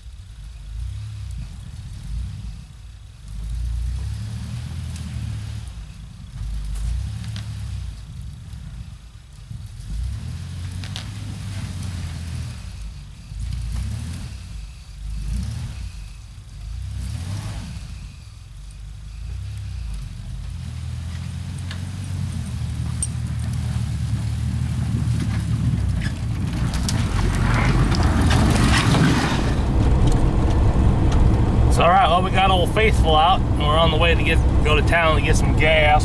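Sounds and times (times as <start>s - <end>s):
road and tyre noise: 0.0s - 36.0s
truck engine speeding up: 19.3s - 36.0s.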